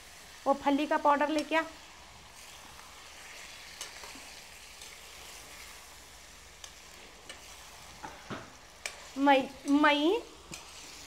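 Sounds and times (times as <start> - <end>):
meat sizzling in a pan: 0.0 - 11.0
spatula clicking against pan: 8.8 - 9.0.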